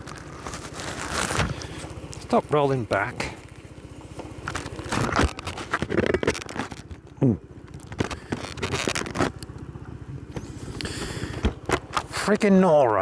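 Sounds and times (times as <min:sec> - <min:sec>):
cloth rustling on microphone: 0:00.0 - 0:02.3, 0:04.3 - 0:07.1, 0:07.7 - 0:09.4
motorcycle engine idling: 0:00.0 - 0:13.0
person grunting: 0:07.2 - 0:07.4.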